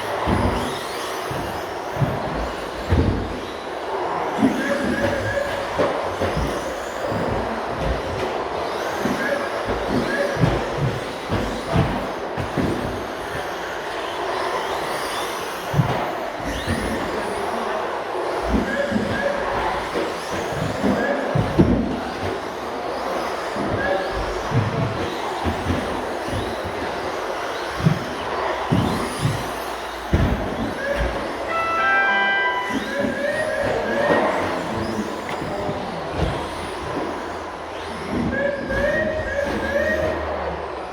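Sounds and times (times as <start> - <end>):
rc truck motors whining: 0.0 - 31.6, 32.6 - 40.9
chime of overlapping tones: 31.5 - 33.4.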